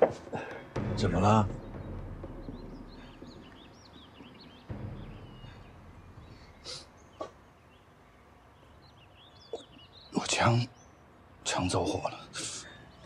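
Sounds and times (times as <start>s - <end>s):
small birds chirping: 0.0s - 13.0s
dull thump: 4.7s - 6.6s.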